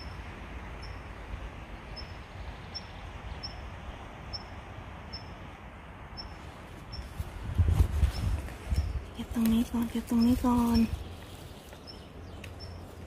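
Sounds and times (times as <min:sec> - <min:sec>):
steady low rumble: 0:00.0 - 0:13.0
small bird calling: 0:08.0 - 0:13.0.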